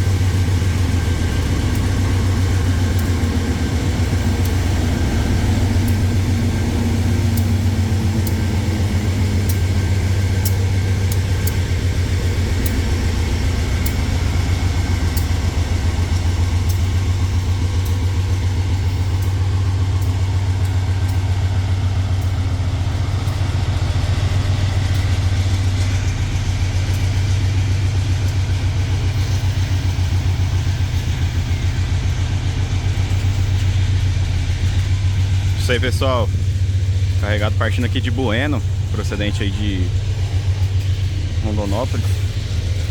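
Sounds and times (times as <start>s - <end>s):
engine droning: 0.0s - 42.9s
faint ticks: 1.7s - 2.0s, 2.6s - 3.4s, 4.0s - 11.9s, 12.5s - 13.0s, 13.7s - 15.6s, 16.6s - 25.3s.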